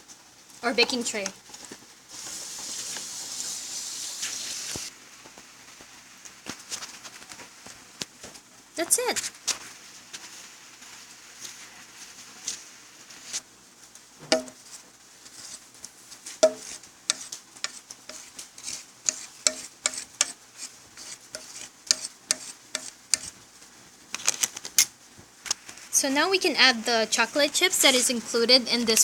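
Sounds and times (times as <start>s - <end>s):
utensil scraping batter in a dish: 10.2s - 13.4s, 14.6s - 23.4s.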